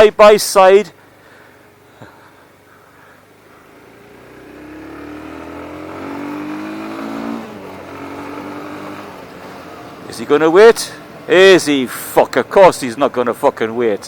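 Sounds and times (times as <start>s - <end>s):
vehicle engine accelerating: 3.6s - 11.7s.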